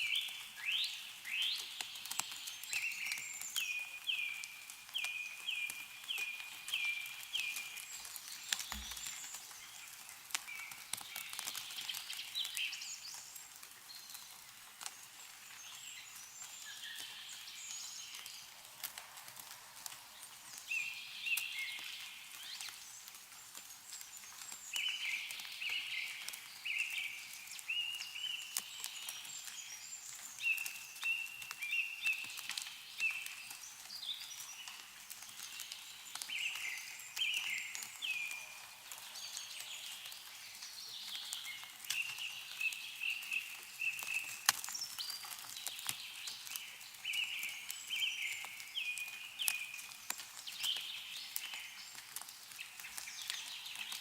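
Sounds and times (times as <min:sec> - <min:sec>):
snowmelt dripping from trees: 0:00.0 - 0:54.0
birds chirping: 0:06.1 - 0:09.9.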